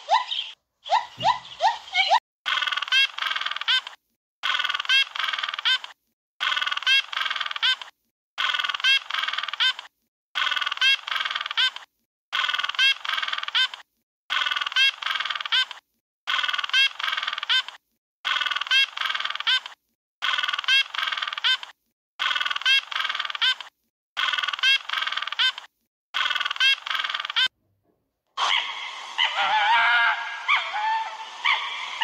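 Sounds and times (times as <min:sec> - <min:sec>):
penguin braying call: 0:28.4 - 0:32.0.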